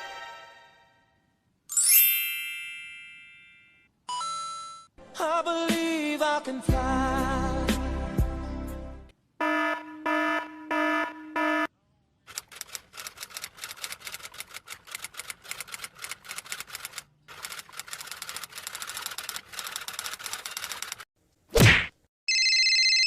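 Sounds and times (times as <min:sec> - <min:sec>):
rapid irregular clicking: 0:12.3 - 0:21.1.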